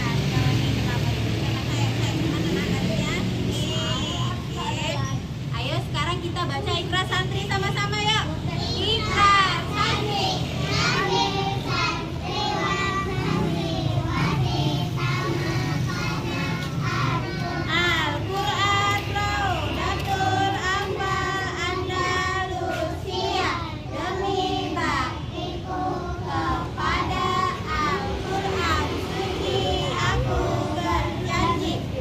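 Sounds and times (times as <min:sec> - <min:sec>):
children singing: 0:08.9 - 0:32.0.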